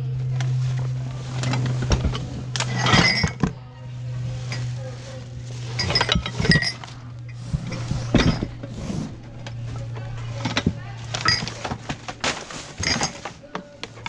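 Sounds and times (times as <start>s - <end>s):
metal saucepans clanking: 1.3s - 3.6s, 5.6s - 8.7s, 9.8s - 13.4s.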